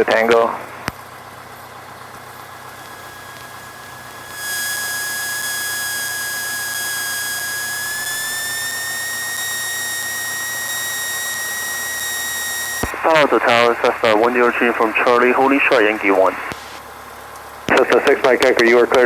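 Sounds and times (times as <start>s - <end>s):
aircraft engine idling hum: 0.0s - 19.0s
high-pitched whine with hiss: 2.2s - 16.9s.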